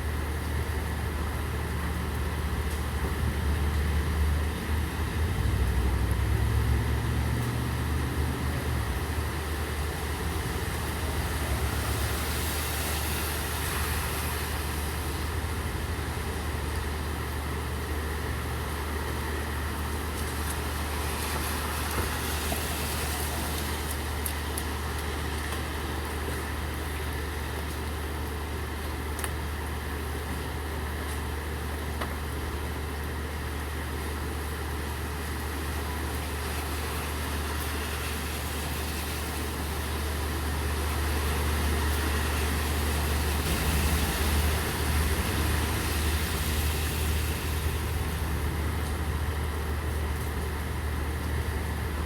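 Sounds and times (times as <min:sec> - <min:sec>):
rain falling: 0:00.0 - 0:52.0
vehicle engine idling: 0:40.1 - 0:52.0.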